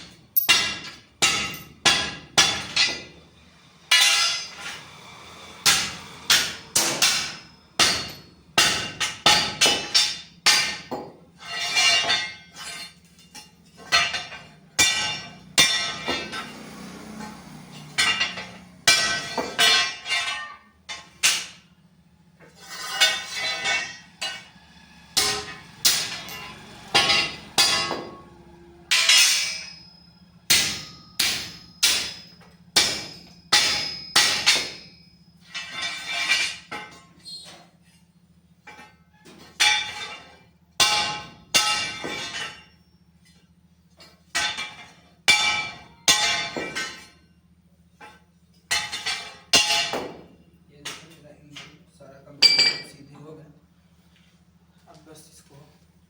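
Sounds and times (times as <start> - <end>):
hammer striking metal: 0.0 - 3.2, 3.9 - 21.7, 22.7 - 37.0, 44.4 - 47.2, 52.4 - 53.0.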